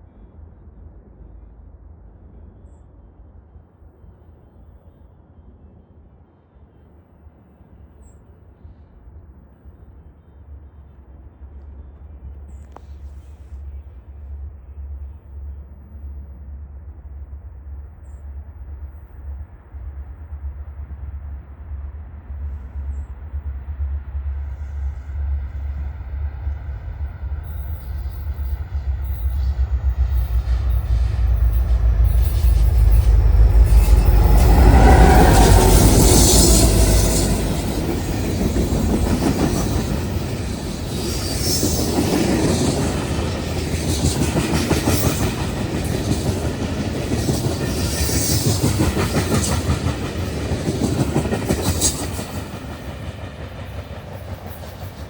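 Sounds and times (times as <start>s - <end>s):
train passing: 6.8s - 55.0s
wheels clattering on rails: 27.5s - 55.0s.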